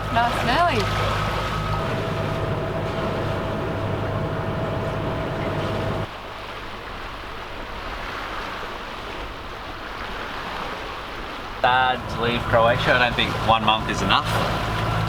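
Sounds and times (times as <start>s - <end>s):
water washing: 0.0s - 6.1s, 11.6s - 15.0s
boat engine humming: 0.0s - 6.2s, 11.4s - 15.0s
wind: 0.0s - 15.0s.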